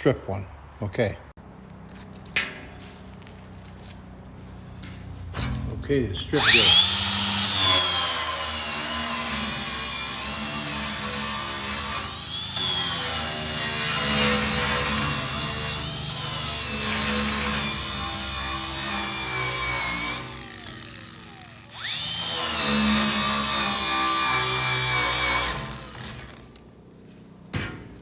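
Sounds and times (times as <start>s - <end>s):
angle grinder on steel: 6.1s - 26.6s.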